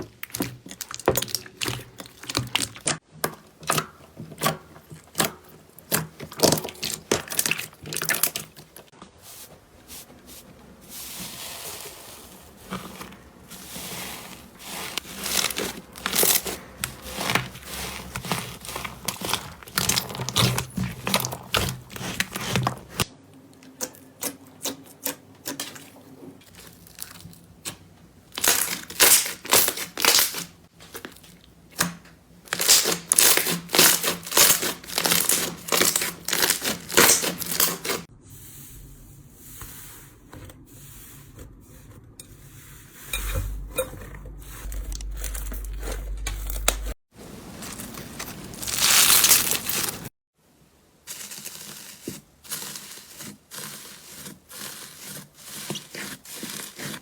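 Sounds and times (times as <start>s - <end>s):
low hum: 43.1s - 47.0s.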